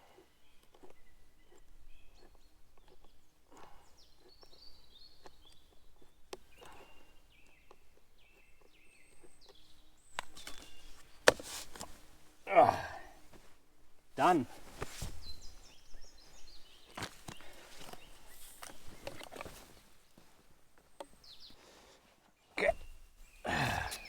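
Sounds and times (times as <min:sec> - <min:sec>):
rustle: 0:10.2 - 0:13.6, 0:14.2 - 0:20.4
faint scuffs: 0:10.4 - 0:12.2, 0:14.4 - 0:21.6.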